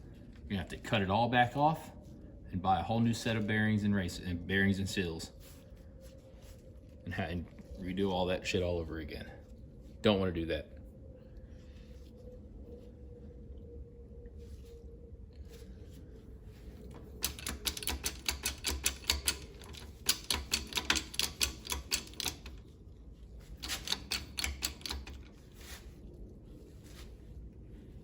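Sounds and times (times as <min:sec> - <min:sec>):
hydraulic press clicking: 0:17.2 - 0:22.6, 0:23.6 - 0:25.3.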